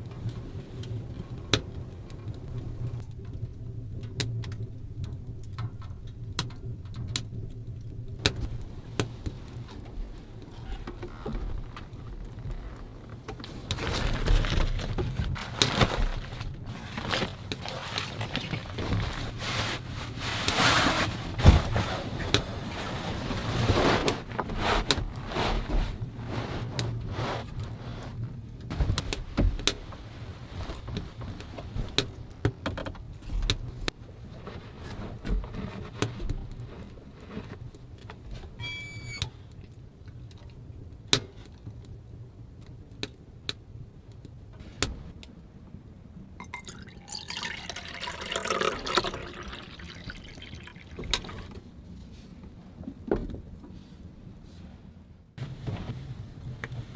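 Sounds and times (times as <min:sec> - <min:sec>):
brief high squeak: 0:38.6 - 0:39.4.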